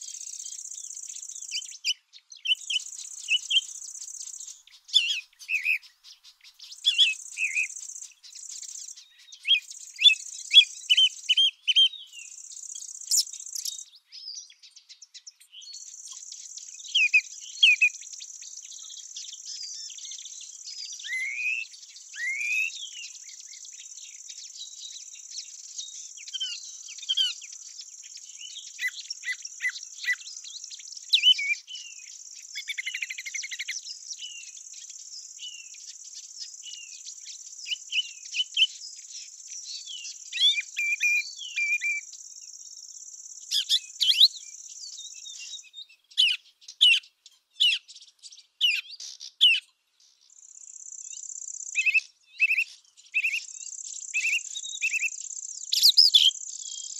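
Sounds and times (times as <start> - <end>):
bird chirps and twitters: 0.0 - 56.9
high-pitched insect trill: 2.6 - 4.6, 6.6 - 9.0, 12.2 - 13.8, 50.3 - 52.0, 53.2 - 56.9.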